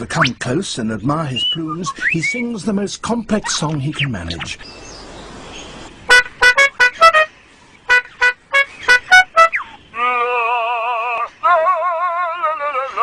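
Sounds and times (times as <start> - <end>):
lyrebird mimicking car alarm: 6.0 - 7.3, 7.9 - 9.8.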